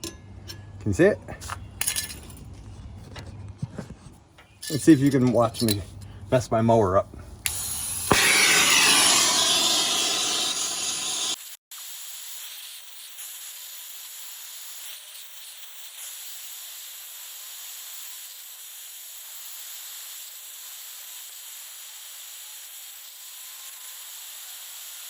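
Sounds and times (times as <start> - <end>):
handheld torch hissing: 7.4 - 14.9.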